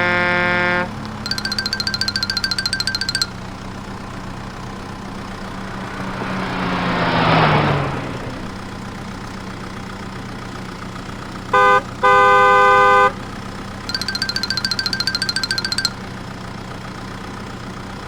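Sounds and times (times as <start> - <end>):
car horn honking: 0.0 - 2.1, 11.5 - 13.3
cartoon engine hum: 0.0 - 8.9, 13.9 - 16.0.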